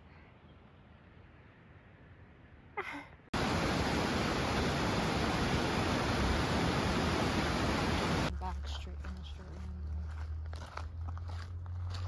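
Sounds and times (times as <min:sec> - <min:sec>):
loud steady rushing noise: 0:03.4 - 0:08.3.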